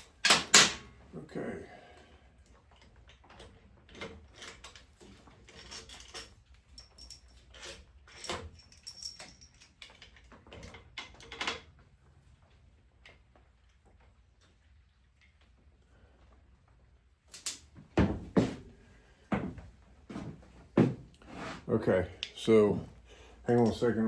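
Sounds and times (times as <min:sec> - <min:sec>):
engine parts and tools clinking: 0:03.2 - 0:11.6.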